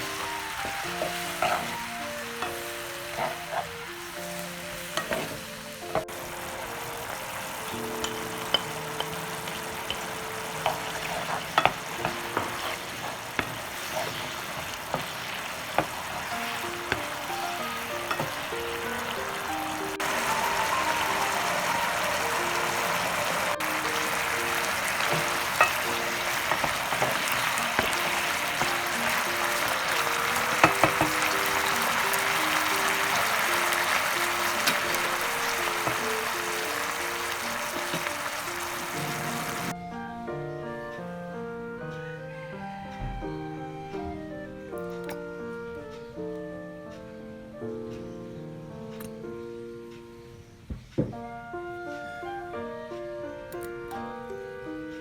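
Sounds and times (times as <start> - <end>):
food sizzling in a pan: 0.0 - 39.7
background music: 0.0 - 55.0
utensil clicking against pan: 8.0 - 9.3.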